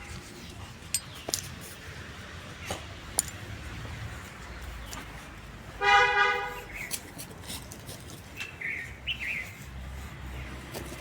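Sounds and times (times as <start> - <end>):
vehicle horn honk: 5.8 - 6.7.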